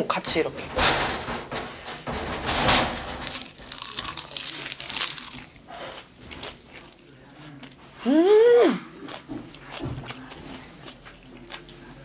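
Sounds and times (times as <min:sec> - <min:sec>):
crisp seaweed crunching: 0:03.2 - 0:05.6
person chewing: 0:03.7 - 0:07.8, 0:08.9 - 0:12.0.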